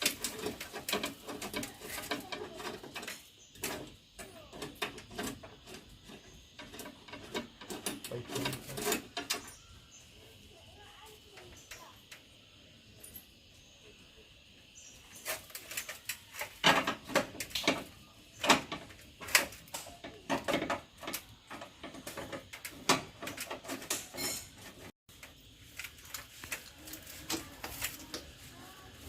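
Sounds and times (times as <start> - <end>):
hard objects knocking and clattering: 0.0 - 9.7, 15.2 - 28.4.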